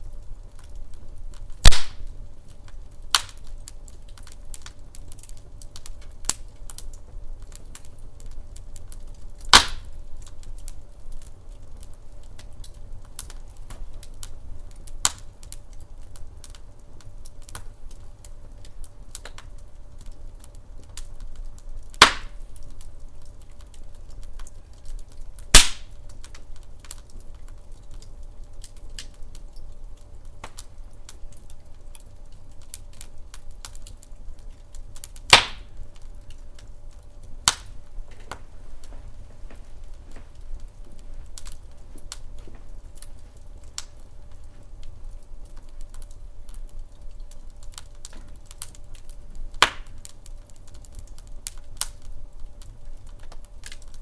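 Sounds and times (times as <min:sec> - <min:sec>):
log fire crackling: 0:00.0 - 0:54.0
low rumble of flame: 0:00.0 - 0:54.0
loud sharp pops of wood: 0:01.6 - 0:02.1, 0:09.5 - 0:09.9, 0:22.0 - 0:22.4, 0:25.5 - 0:25.9, 0:30.4 - 0:30.6, 0:35.3 - 0:35.7, 0:49.6 - 0:50.0.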